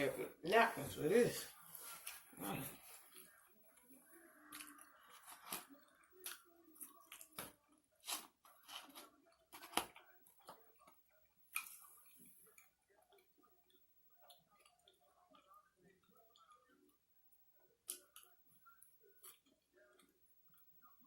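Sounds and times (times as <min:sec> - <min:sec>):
chewing and mouth clicks: 0:03.1 - 0:17.0.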